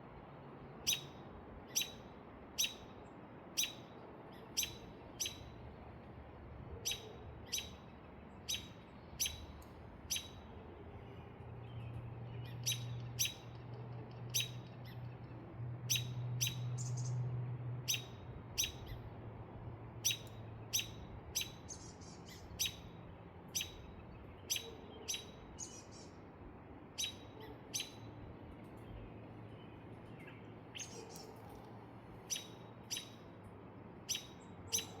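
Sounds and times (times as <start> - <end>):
bird chirping: 0.8 - 2.8, 3.6 - 5.6, 6.8 - 17.2, 17.8 - 19.1, 20.0 - 26.2, 27.0 - 28.1, 28.7 - 31.5, 32.2 - 33.4, 34.0 - 35.0.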